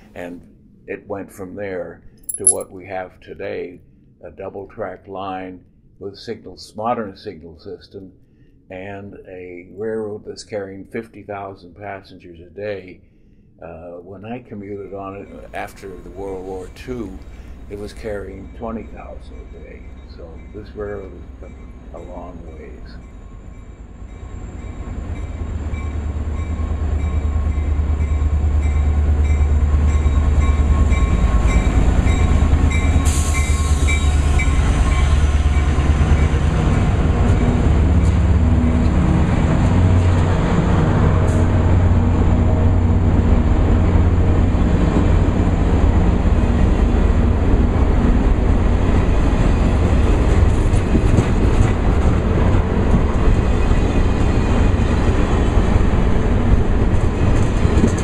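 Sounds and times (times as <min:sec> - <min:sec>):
diesel train rumbling: 0:15.1 - 0:58.0.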